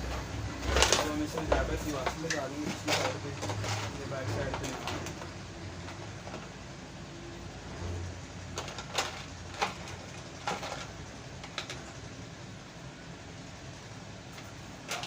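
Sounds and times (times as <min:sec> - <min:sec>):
plastic parts clicking and knocking: 0:00.6 - 0:06.5, 0:08.5 - 0:12.0, 0:14.4 - 0:15.0.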